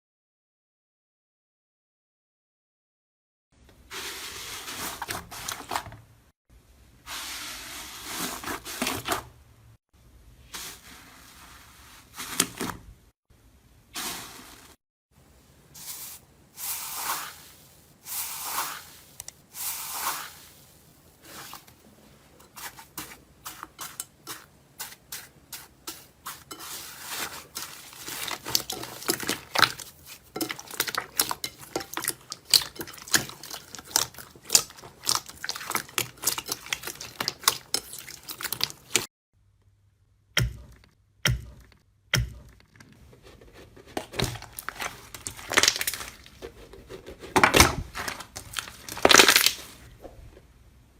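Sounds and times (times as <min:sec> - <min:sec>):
slime squishing: 0:22.6 - 0:39.1, 0:43.6 - 0:50.0
slime crackling and crunching: 0:27.0 - 0:39.1, 0:44.2 - 0:46.4, 0:47.5 - 0:49.9.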